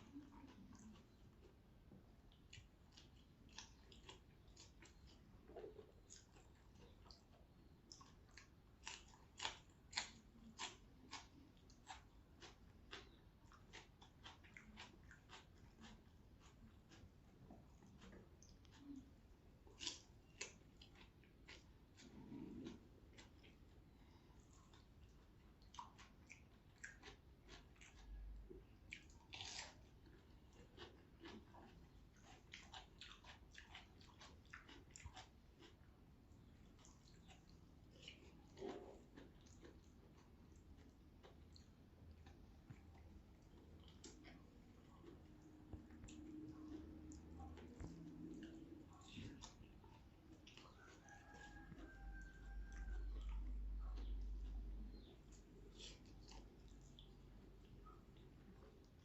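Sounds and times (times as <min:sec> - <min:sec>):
person chewing crunchy vegetables: 0:00.0 - 0:59.0.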